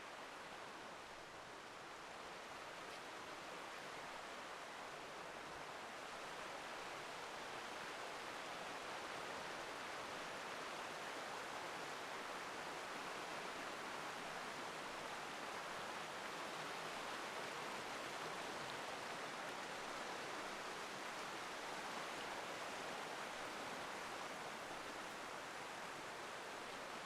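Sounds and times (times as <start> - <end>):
stream rushing over cascades: 0.0 - 27.0.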